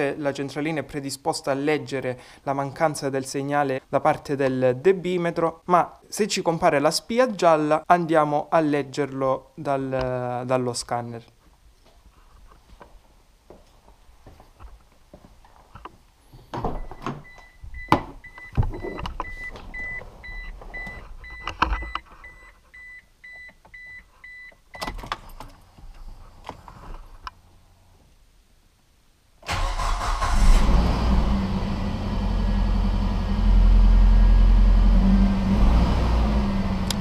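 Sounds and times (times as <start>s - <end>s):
dashboard warning chime beeping: 16.8s - 24.9s
car engine starting and idling: 29.5s - 37.0s.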